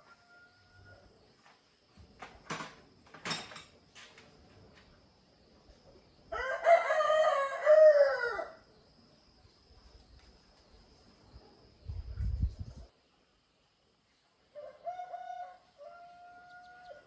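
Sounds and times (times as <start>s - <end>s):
rooster crowing: 0.0s - 1.0s, 6.3s - 8.6s, 14.5s - 17.0s.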